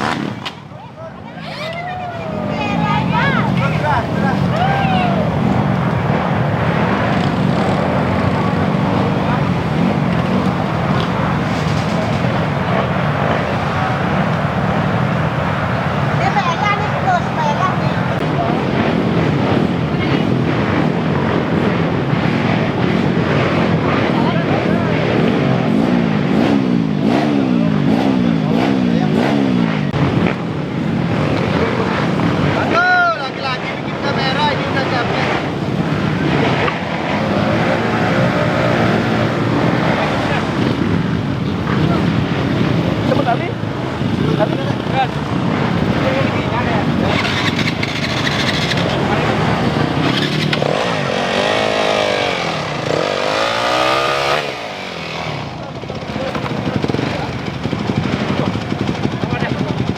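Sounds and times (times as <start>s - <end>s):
motorbike engine revving: 0.0s - 0.7s, 18.1s - 59.9s
onlookers' voices: 0.0s - 59.9s.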